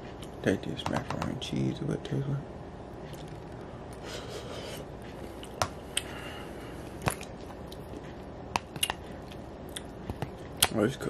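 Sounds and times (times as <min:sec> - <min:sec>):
man chewing: 0:03.0 - 0:10.7.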